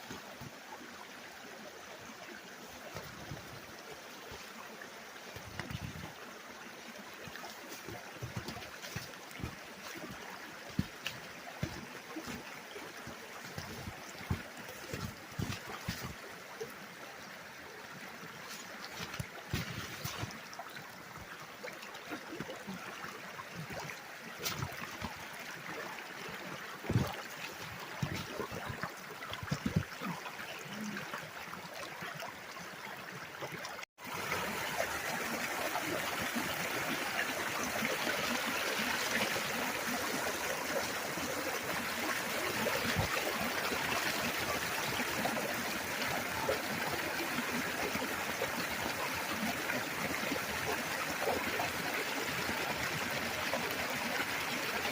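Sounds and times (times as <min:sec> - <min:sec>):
stream water trickling: 0:00.0 - 0:54.9
water rushing: 0:00.0 - 0:54.9.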